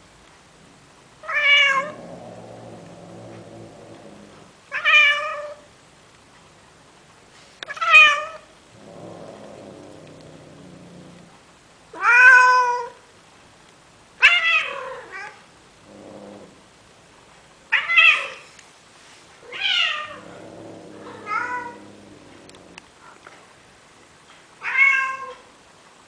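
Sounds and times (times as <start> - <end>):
cat mating meows: 19.5 - 22.8
quiet low cat calls: 19.5 - 22.8.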